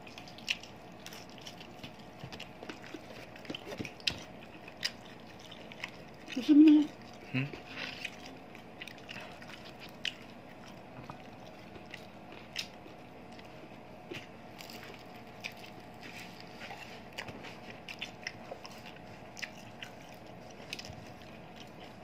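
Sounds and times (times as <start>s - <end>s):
people chewing crisp food: 0.0s - 22.0s.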